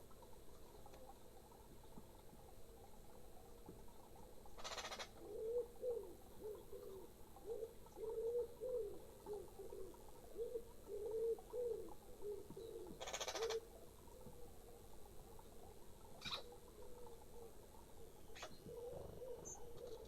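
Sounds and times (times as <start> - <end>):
pigeon cooing: 4.6 - 13.7, 18.4 - 20.0.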